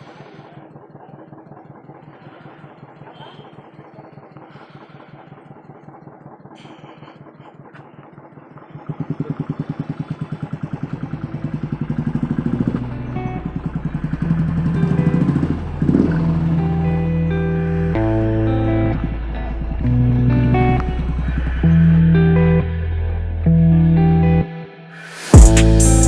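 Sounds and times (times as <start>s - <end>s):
motorcycle engine idling and revving: 7.6s - 22.6s, 25.3s - 26.0s.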